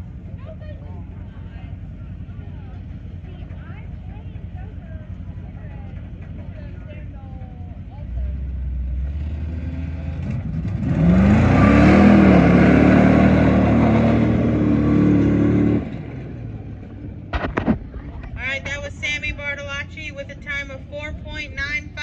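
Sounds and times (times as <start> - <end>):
truck engine revving: 0.0 - 22.0
tyres throwing mud: 17.3 - 18.4.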